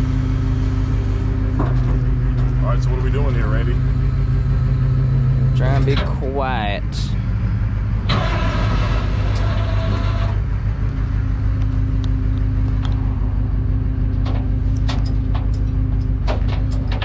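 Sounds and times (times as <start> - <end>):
steady hydraulic hum: 0.0 - 17.0
truck engine idling: 0.0 - 17.0.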